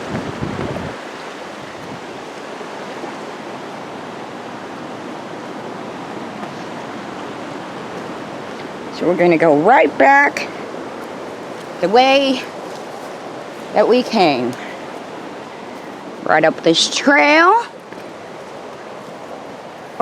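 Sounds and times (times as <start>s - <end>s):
wind rumble on microphone: 0.0s - 9.2s
river water rushing: 0.0s - 20.0s.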